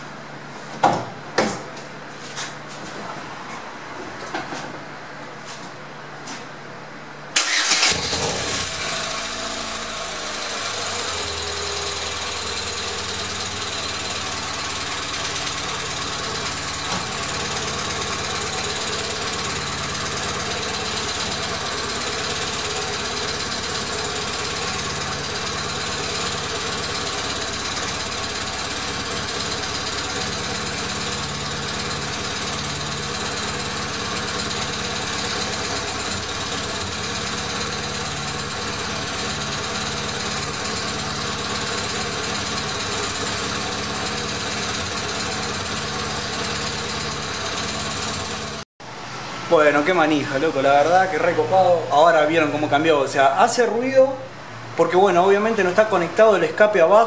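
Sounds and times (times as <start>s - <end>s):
engine idling with exhaust blowing: 8.2s - 52.9s.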